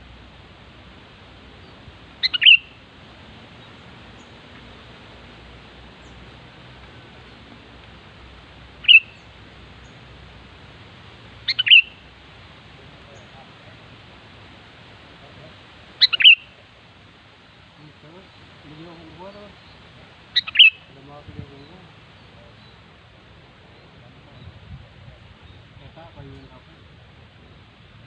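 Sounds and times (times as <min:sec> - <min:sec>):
faint hiss: 0:00.0 - 0:28.0
bird calling in clear notes: 0:01.6 - 0:02.8, 0:08.7 - 0:10.0, 0:11.4 - 0:12.2, 0:15.9 - 0:16.8, 0:17.8 - 0:22.9.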